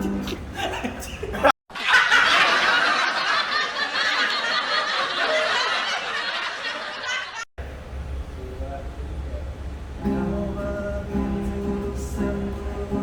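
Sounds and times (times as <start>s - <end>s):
group of people laughing: 0.0s - 7.5s.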